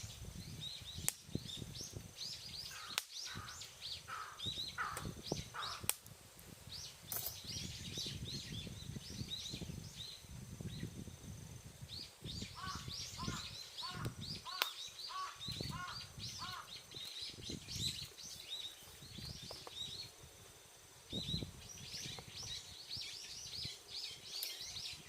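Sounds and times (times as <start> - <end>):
lower bird calls: 0.0 - 6.0, 11.9 - 20.2, 21.1 - 25.0
small birds chirping: 0.0 - 11.1, 11.8 - 20.4, 21.0 - 25.0
sharp cracks: 14.0 - 14.9.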